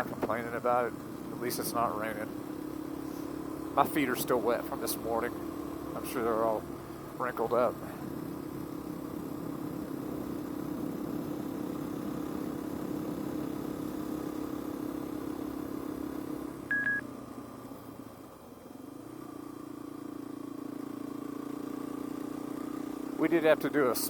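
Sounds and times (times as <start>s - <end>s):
engine hum: 0.0s - 24.0s
short high electronic beep: 16.7s - 17.0s.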